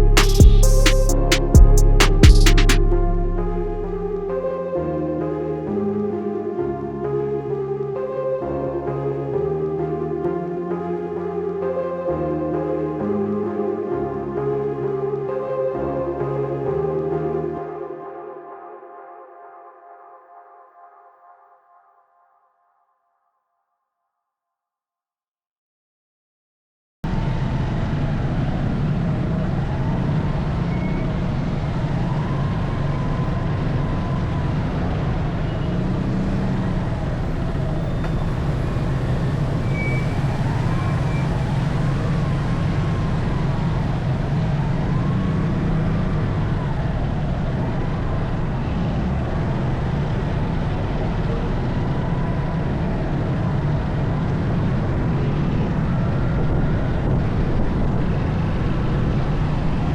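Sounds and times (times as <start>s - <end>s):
road and wind noise: 27.1s - 59.9s.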